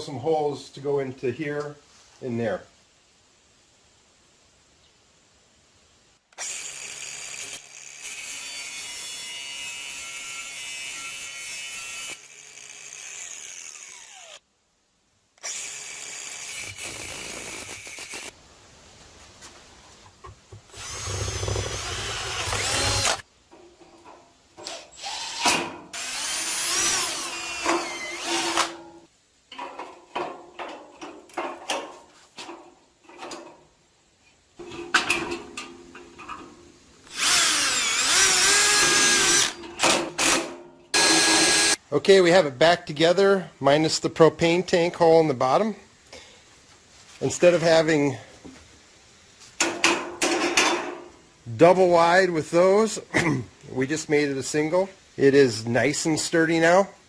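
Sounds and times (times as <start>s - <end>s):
electric drill boring holes: 6.4s - 8.8s, 9.6s - 14.4s, 15.4s - 18.3s, 20.7s - 23.2s, 24.6s - 28.8s, 37.1s - 39.6s, 41.0s - 41.8s
knocks and clatters of parts: 28.5s - 33.7s, 34.6s - 36.6s, 39.4s - 40.8s, 49.6s - 51.1s.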